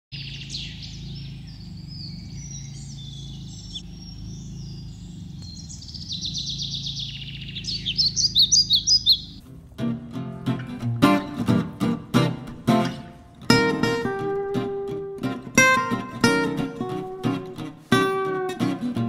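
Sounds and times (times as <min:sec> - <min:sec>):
small birds chirping and singing: 0:00.1 - 0:09.4
fast-repeating bird trill: 0:00.2 - 0:09.4
steady low hum: 0:00.2 - 0:18.5.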